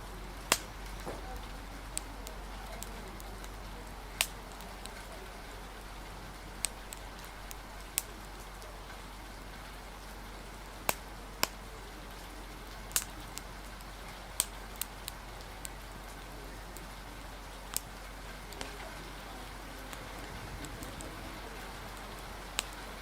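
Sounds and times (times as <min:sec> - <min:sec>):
rain hiss: 0:00.0 - 0:23.0
wood fire crackling: 0:00.0 - 0:23.0
sharp pops: 0:00.5 - 0:01.4.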